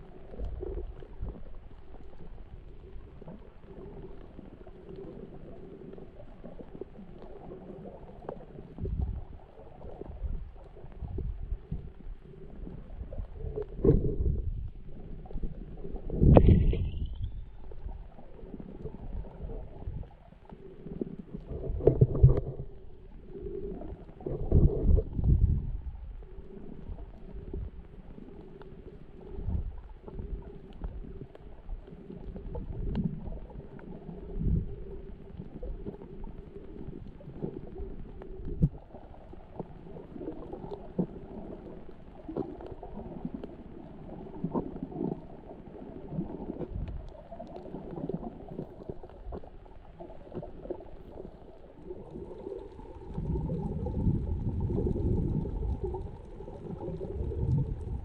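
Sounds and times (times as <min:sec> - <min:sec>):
underwater rumbling and gurgling: 0:00.0 - 0:58.0
soft knocks underwater: 0:12.7 - 0:20.1, 0:21.1 - 0:22.9, 0:23.7 - 0:26.0, 0:37.4 - 0:58.0.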